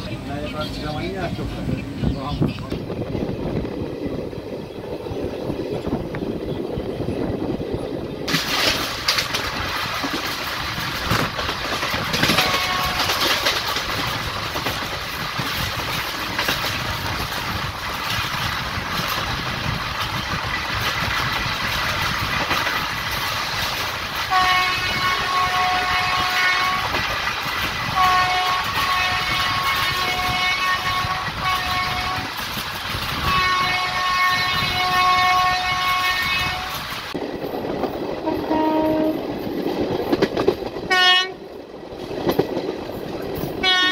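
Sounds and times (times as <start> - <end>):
train rumbling on rails: 0.0 - 43.9
two-note train horn: 12.3 - 13.2, 24.3 - 26.9, 28.0 - 32.3, 33.2 - 36.7, 38.2 - 39.2, 40.9 - 41.4, 43.6 - 43.9.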